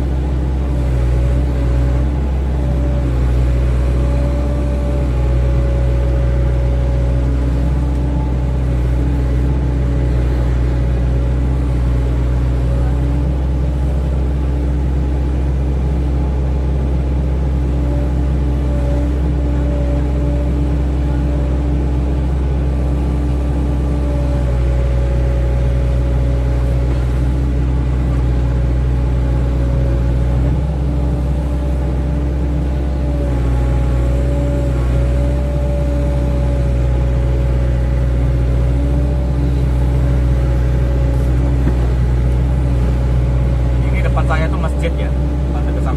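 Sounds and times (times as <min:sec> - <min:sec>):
excavator diesel engine running: 0:00.0 - 0:45.9
steady whine: 0:26.6 - 0:45.9.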